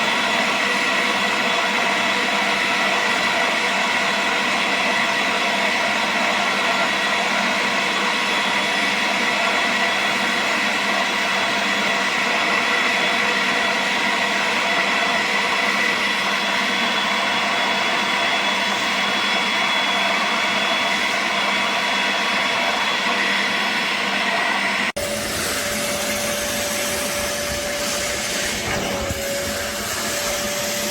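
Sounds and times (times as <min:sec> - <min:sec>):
suction motor whining: 0:10.9 - 0:30.9.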